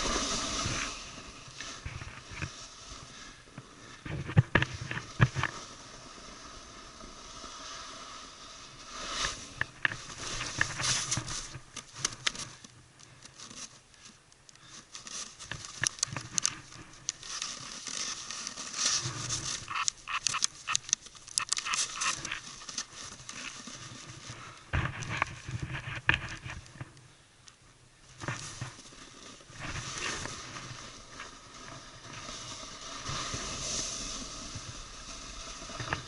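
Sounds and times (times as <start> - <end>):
snowboard scraping over snow: 0.0 - 11.7, 17.2 - 19.8, 28.2 - 36.0.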